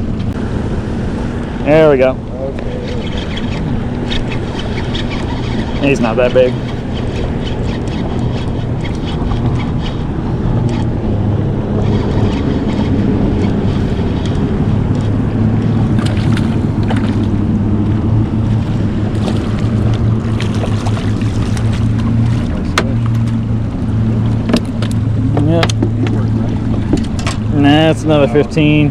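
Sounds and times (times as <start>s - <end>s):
boat engine humming: 0.0s - 28.9s
water around hull: 0.0s - 28.9s
wind buffeting microphone: 0.0s - 28.9s.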